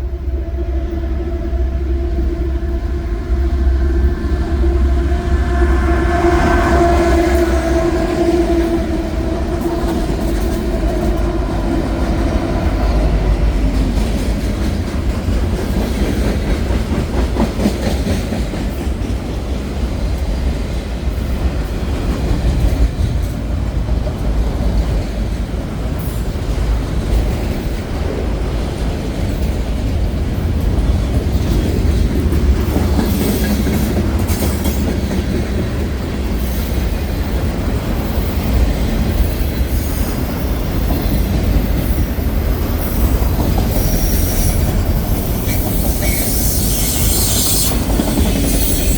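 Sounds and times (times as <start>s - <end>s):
freight train rumbling: 0.0s - 48.9s.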